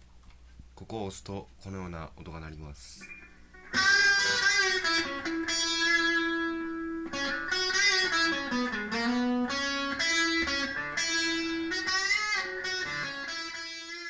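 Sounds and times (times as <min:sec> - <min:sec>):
electric guitar phrase: 0:03.0 - 0:14.0.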